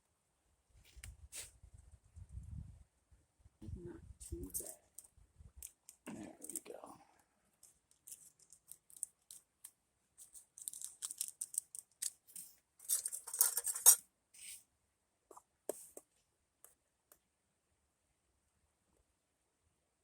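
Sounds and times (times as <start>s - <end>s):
plastic packet crinkling and tearing: 7.6s - 12.3s.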